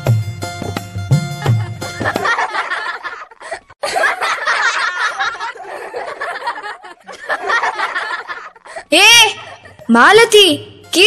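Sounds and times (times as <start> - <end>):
girls laughing and giggling: 1.4 - 9.9.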